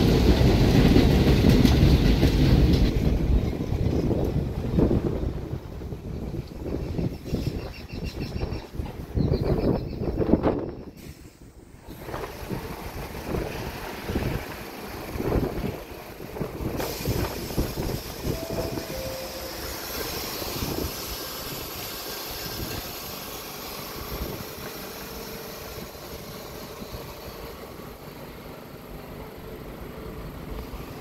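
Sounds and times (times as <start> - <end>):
train rumble and hiss: 0.0 - 31.0
short tones: 18.3 - 20.6.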